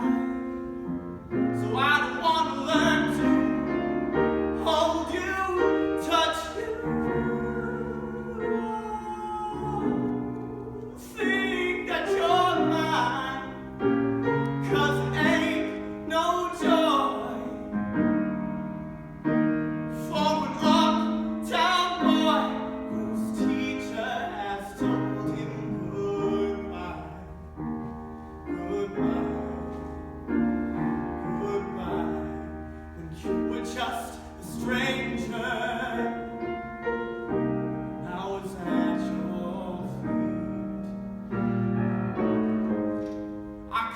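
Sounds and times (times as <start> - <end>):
piano accompaniment: 0.0 - 43.9
person singing: 4.6 - 13.8.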